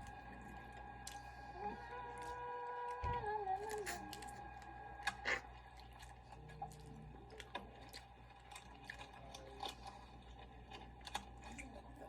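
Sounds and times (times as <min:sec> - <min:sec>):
low steady hum: 0:00.0 - 0:12.0
person chewing: 0:03.7 - 0:12.0.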